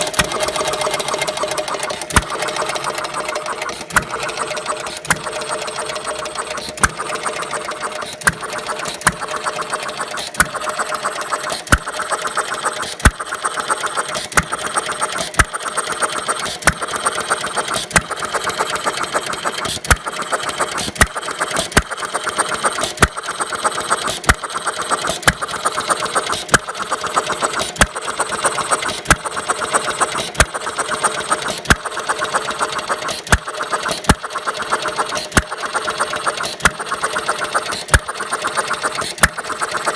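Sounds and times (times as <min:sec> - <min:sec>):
engine mechanical clatter: 0:00.0 - 0:39.9.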